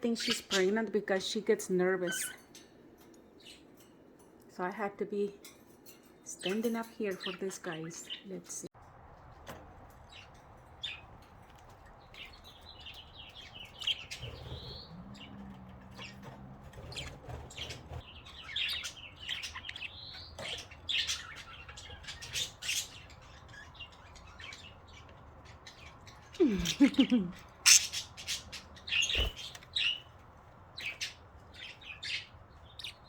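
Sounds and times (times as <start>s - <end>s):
budgerigars chirping and chattering: 0.0s - 2.6s, 6.3s - 8.6s, 10.0s - 33.0s
budgerigars warbling: 0.1s - 0.8s, 12.2s - 30.1s.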